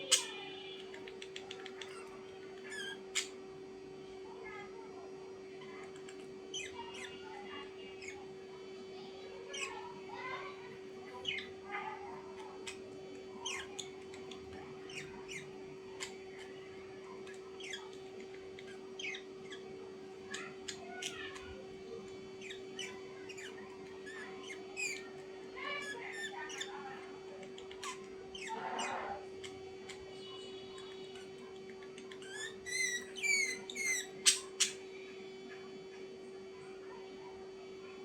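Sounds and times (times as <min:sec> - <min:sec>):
birds chirping: 0:00.0 - 0:04.7, 0:05.4 - 0:36.1
harsh bird squawk: 0:14.8 - 0:16.5, 0:27.8 - 0:29.2.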